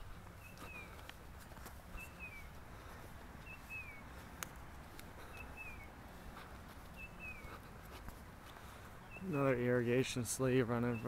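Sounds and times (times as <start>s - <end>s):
songbird calling: 0.0s - 1.2s, 1.8s - 11.0s
faint outdoor rumble: 0.0s - 11.0s
faint ticks: 4.2s - 5.5s.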